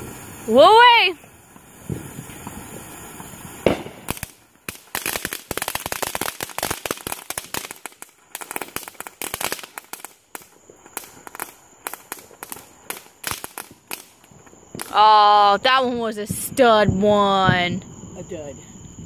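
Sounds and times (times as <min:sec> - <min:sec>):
firework crackling pops: 0:00.0 - 0:17.8
firework bang: 0:01.6 - 0:15.0.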